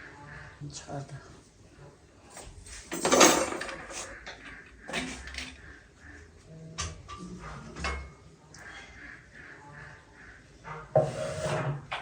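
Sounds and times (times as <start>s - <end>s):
dishes and cutlery clattering: 2.9s - 5.6s, 6.8s - 8.2s.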